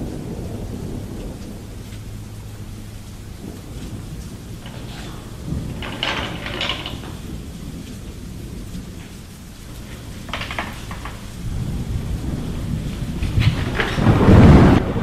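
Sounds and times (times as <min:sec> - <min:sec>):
steady low rumble: 0:00.0 - 0:15.0
clicking or rattling bursts: 0:03.1 - 0:14.8.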